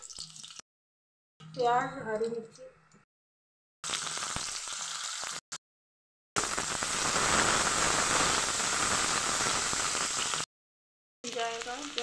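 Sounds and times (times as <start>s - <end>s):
hot oil sizzling: 0.0s - 0.6s, 3.8s - 5.6s, 6.4s - 10.5s, 11.2s - 12.0s
onions frying: 0.0s - 0.6s, 3.8s - 5.6s, 6.4s - 10.5s, 11.2s - 12.0s.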